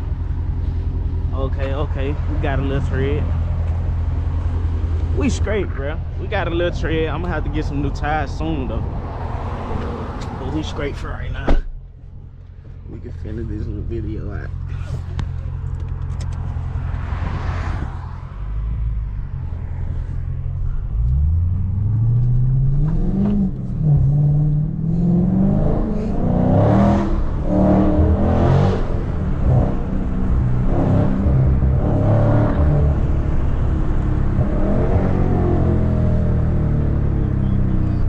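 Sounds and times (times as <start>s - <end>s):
car engine revving through gears: 20.9s - 38.0s.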